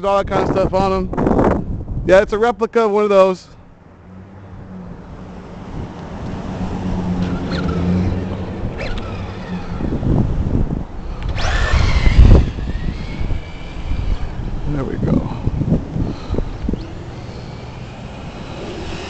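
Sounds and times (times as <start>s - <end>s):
wind on microphone: 0.0s - 2.4s, 5.0s - 19.0s
tyre noise on pavement: 5.5s - 19.0s
electric motor whine: 7.0s - 19.0s.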